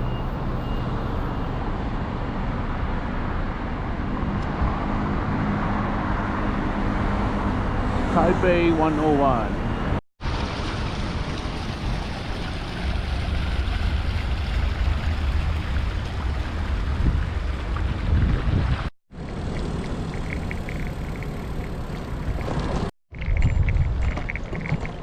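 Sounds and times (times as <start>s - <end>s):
wind buffeting microphone: 11.8s - 18.9s, 22.1s - 25.0s.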